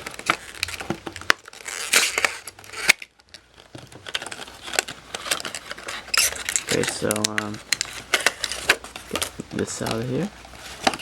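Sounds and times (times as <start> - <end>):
packaging crinkling and crackling: 0.0 - 11.0.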